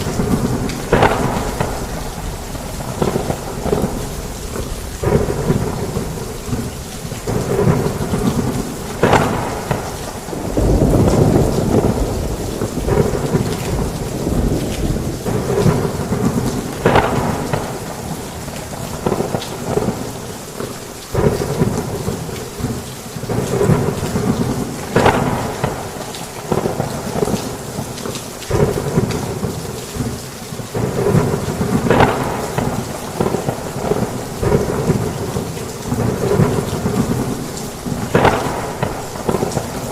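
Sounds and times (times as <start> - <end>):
sharp thunder cracks: 0.0 - 20.1, 21.1 - 27.9, 28.5 - 39.9
heavy rain falling: 0.0 - 39.9
thunder rumbling: 0.0 - 39.9.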